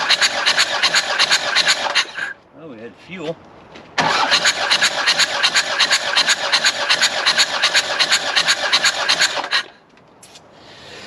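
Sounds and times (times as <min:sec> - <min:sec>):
diesel engine cranking on starter: 0:00.0 - 0:02.3, 0:04.0 - 0:09.8.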